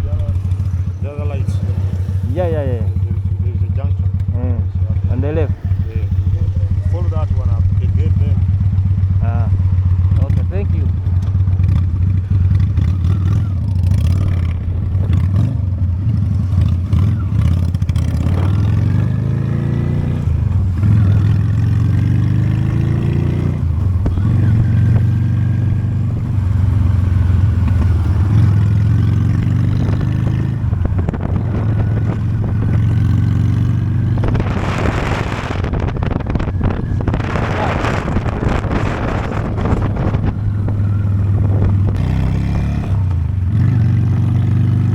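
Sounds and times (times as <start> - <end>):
motorcycle engine accelerating: 0.0 - 44.9
wind rush on microphone: 20.0 - 44.9.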